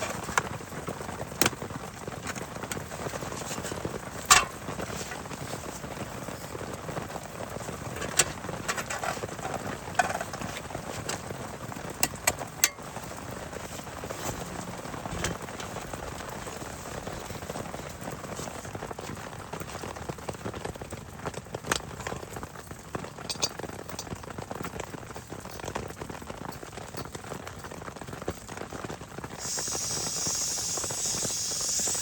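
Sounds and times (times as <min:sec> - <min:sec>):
heavy rain: 0:00.0 - 0:32.0.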